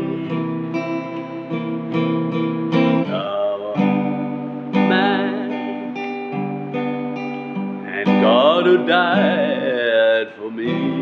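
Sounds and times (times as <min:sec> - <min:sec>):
person singing worship song: 0:00.0 - 0:00.8, 0:03.0 - 0:06.0, 0:07.8 - 0:11.0
acoustic guitar strumming chords: 0:00.0 - 0:11.0.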